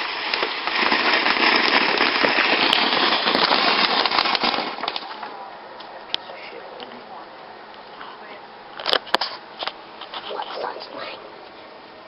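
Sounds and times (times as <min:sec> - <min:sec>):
firework hissing crackle: 0:00.0 - 0:05.3.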